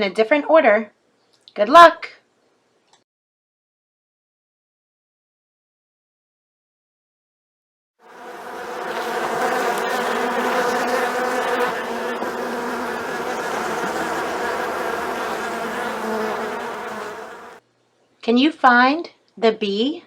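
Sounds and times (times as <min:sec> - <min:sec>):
bees buzzing: 0:08.0 - 0:17.6.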